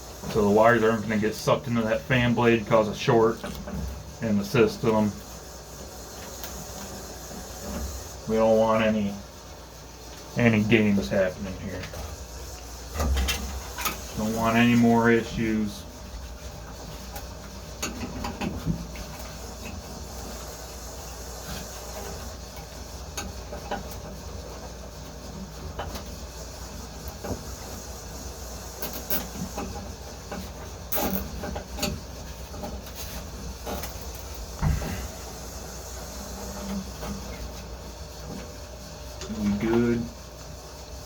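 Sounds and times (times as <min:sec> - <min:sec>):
low machinery hum: 0:00.0 - 0:41.0.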